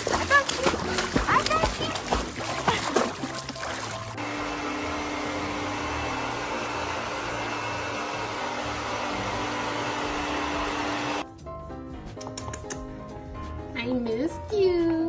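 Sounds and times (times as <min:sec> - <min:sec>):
electric motor whirring: 0:04.2 - 0:11.2.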